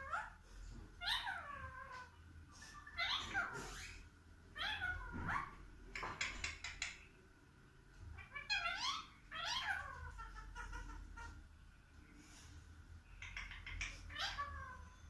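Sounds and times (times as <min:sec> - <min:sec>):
parrot calling: 0:00.0 - 0:00.4, 0:01.0 - 0:07.0, 0:08.2 - 0:11.5, 0:13.1 - 0:15.0.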